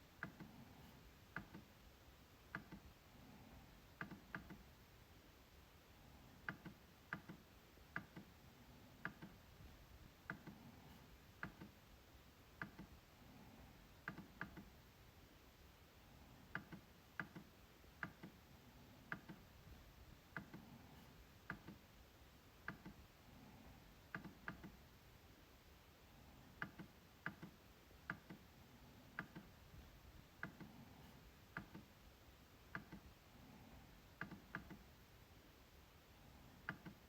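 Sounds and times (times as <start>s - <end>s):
trackpad clicks: 4.0s - 4.7s, 6.4s - 8.3s, 11.4s - 11.8s, 12.6s - 13.0s, 14.0s - 14.7s, 16.5s - 18.4s, 19.1s - 19.5s, 21.5s - 21.8s, 22.6s - 23.0s, 24.1s - 24.8s, 26.6s - 28.4s, 29.2s - 29.6s, 31.5s - 31.9s, 32.7s - 33.1s, 34.2s - 34.9s, 36.6s - 37.0s.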